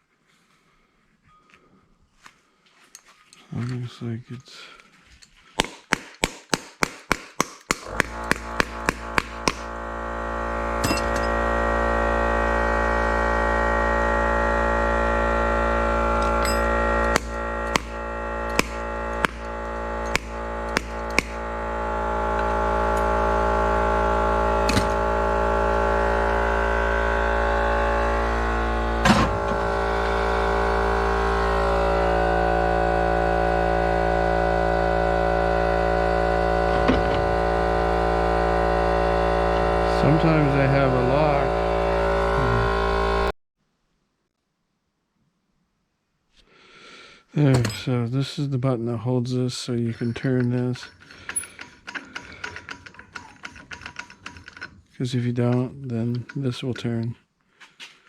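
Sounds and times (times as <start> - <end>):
electric motor humming: 7.7 - 43.3, 49.7 - 57.0.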